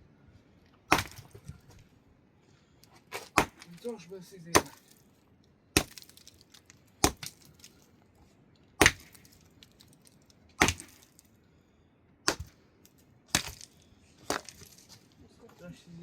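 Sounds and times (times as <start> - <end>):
hand tool striking hard material: 0.9 - 1.4, 3.1 - 4.9, 5.8 - 6.2, 7.0 - 7.5, 8.8 - 9.4, 10.6 - 11.1, 12.3 - 12.6, 13.3 - 13.7.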